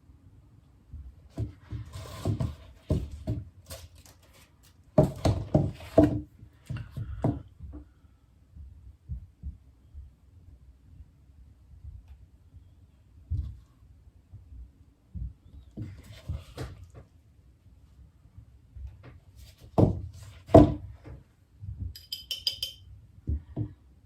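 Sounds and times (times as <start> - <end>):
hard objects knocking and clattering: 5.0 - 7.5, 21.8 - 23.8.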